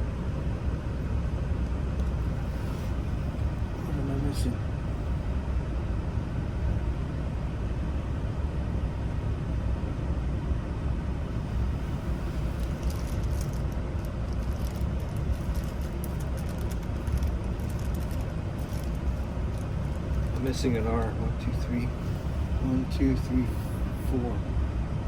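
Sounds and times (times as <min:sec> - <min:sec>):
low rumble: 0:11.2 - 0:25.0.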